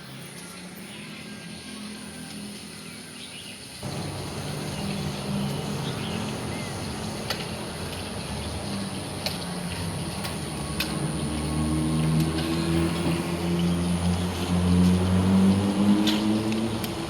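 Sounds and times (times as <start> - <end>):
birds chirping: 0.0 - 17.0
low motor hum: 3.8 - 17.0.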